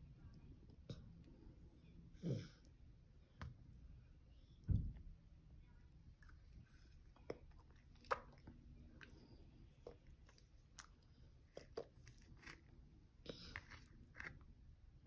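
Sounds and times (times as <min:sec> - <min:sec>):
toddler chewing noodles: 0:06.2 - 0:14.5.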